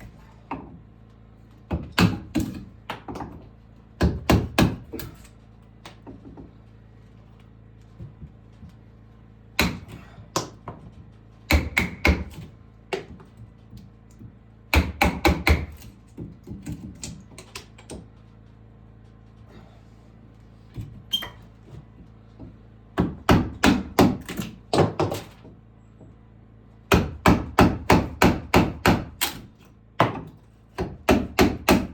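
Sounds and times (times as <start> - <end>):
hammer striking wood: 1.7 - 3.4, 4.0 - 5.2, 9.6 - 10.8, 11.5 - 13.2, 14.2 - 17.2, 23.0 - 25.3, 26.9 - 29.4, 30.0 - 31.9.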